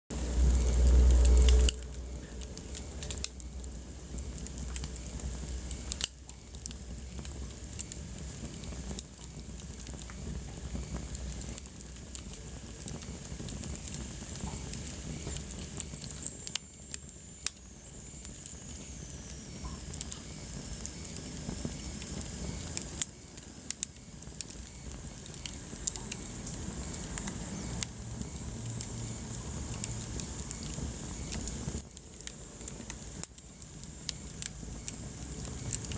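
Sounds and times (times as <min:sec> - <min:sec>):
fire crackling and popping: 0:00.1 - 0:35.9
wood fire rumbling and hissing: 0:00.1 - 0:35.9
faint high whistle: 0:14.5 - 0:29.2.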